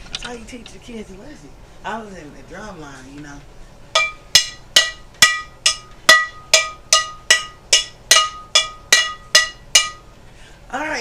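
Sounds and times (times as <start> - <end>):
metal cookware beaten like a drum: 3.9 - 10.1.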